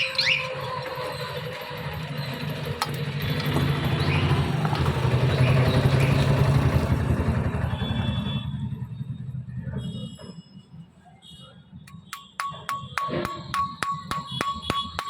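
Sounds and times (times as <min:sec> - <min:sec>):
engine throbbing: 0:00.8 - 0:09.8.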